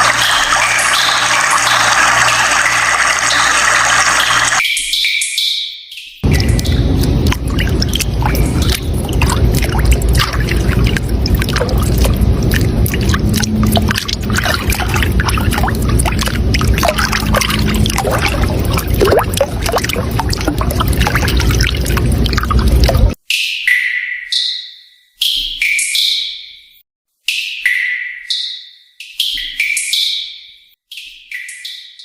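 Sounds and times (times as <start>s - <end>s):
running water splashing: 0.0s - 4.6s, 6.2s - 23.2s.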